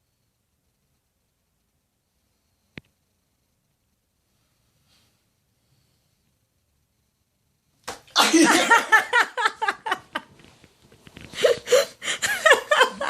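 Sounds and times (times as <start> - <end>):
person laughing loudly: 8.2 - 10.4, 11.3 - 13.0.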